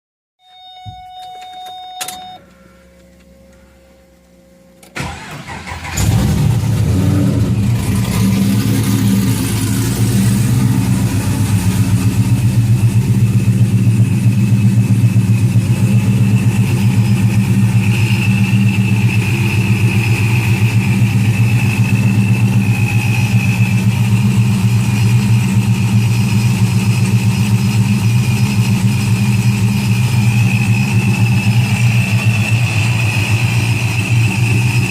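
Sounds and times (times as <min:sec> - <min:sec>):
short electronic beeps: 0:00.4 - 0:02.4
car engine idling: 0:04.9 - 0:34.9.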